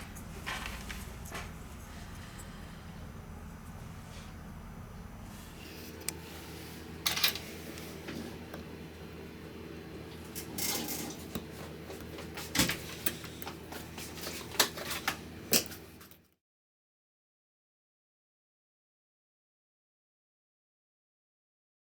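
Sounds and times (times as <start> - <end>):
steady low hum: 0.0 - 16.2.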